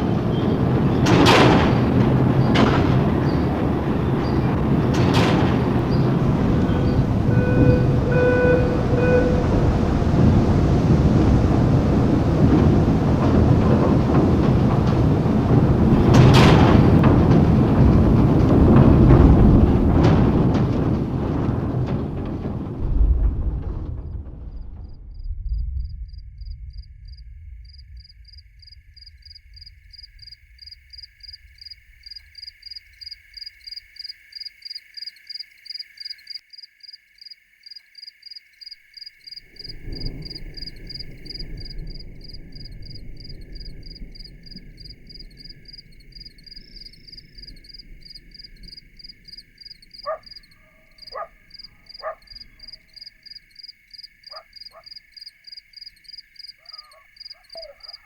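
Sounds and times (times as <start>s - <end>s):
low rumble: 0.0s - 33.7s, 39.4s - 53.0s
frogs calling in chorus: 30.6s - 58.0s.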